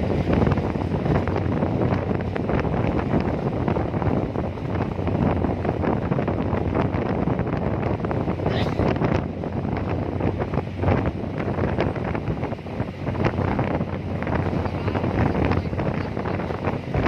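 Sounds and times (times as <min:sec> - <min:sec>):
ferry engine hum: 0:00.0 - 0:17.0
wind buffeting microphone: 0:00.0 - 0:17.0.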